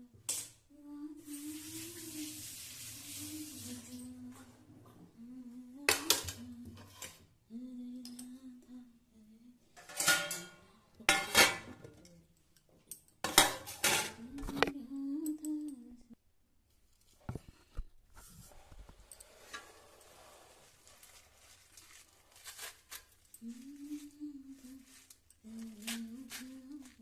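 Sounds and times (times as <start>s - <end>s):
person humming: 7.5s - 9.7s, 14.2s - 16.2s, 23.4s - 27.0s
pots and utensils clattering: 9.8s - 12.0s, 12.9s - 14.6s, 19.1s - 20.5s.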